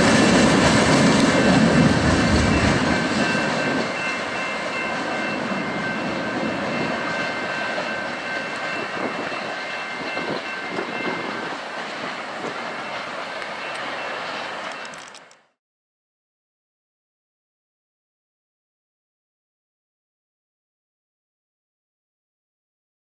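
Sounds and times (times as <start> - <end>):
train wheels rumbling on track: 0.0 - 15.6.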